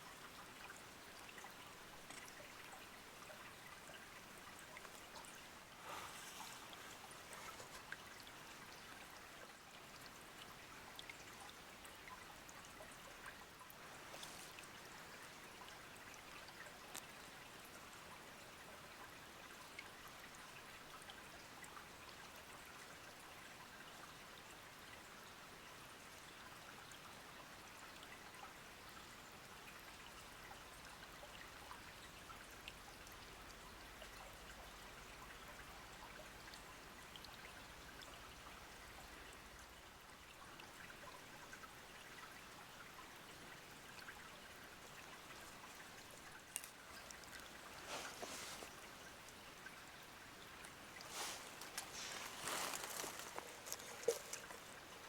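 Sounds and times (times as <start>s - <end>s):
small stream trickling: 0.0s - 55.0s
faint ticks: 0.6s - 4.0s, 10.9s - 18.0s, 44.8s - 49.4s, 50.5s - 55.0s.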